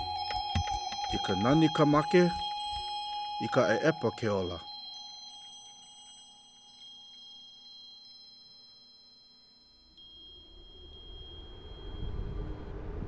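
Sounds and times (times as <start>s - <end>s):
soft high chime tones: 0.0s - 13.0s
low rumble: 10.4s - 13.0s.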